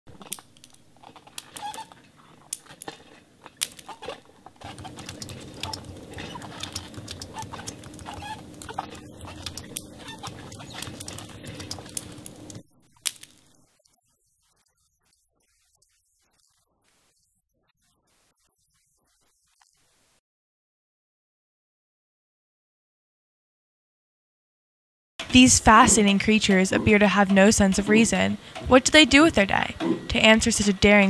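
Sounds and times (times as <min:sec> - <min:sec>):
steady hum: 0:00.1 - 0:15.3, 0:25.2 - 0:31.0
bird calls: 0:03.9 - 0:12.0
scattered clicks: 0:04.6 - 0:14.0.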